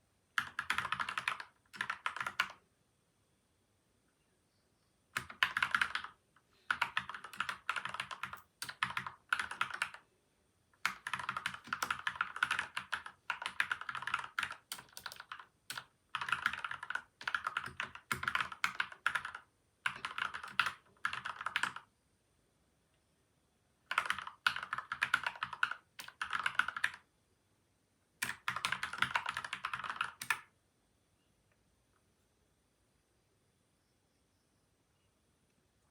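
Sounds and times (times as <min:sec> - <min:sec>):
mechanical keyboard typing: 0:00.4 - 0:02.6, 0:05.2 - 0:10.0, 0:10.8 - 0:21.8, 0:23.9 - 0:27.0, 0:28.2 - 0:30.5.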